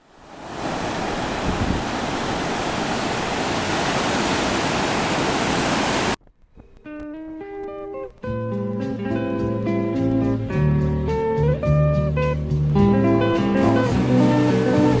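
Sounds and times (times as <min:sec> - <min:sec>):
ocean surf: 0:00.0 - 0:06.2, 0:12.8 - 0:15.0
wind: 0:00.0 - 0:07.1, 0:12.3 - 0:15.0.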